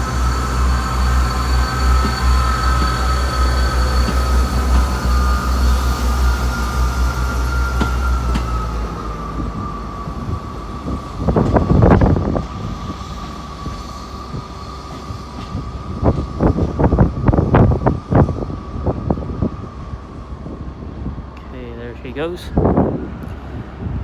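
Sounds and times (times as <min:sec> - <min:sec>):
high-pitched whine: 0:00.0 - 0:14.8
diesel train engine running: 0:00.0 - 0:24.0
heavy rumble bursts: 0:00.0 - 0:24.0.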